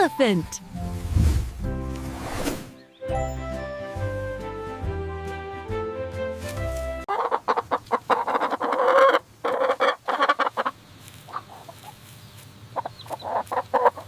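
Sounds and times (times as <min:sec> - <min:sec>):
chickens clucking: 0:07.1 - 0:14.0.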